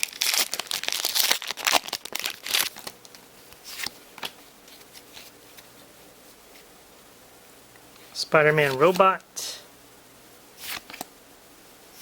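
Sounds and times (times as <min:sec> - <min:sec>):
foil wrapper crinkling and tearing: 0:00.0 - 0:03.2.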